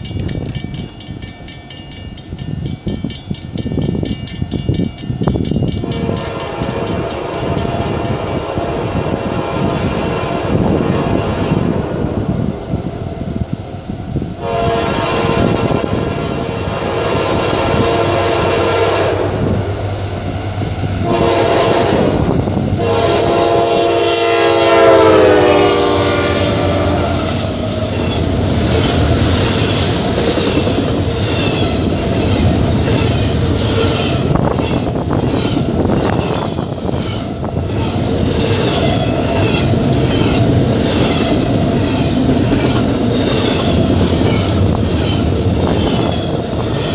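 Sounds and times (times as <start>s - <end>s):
locomotive air horn blasts: 5.8s - 8.3s, 14.4s - 20.0s, 21.0s - 27.8s.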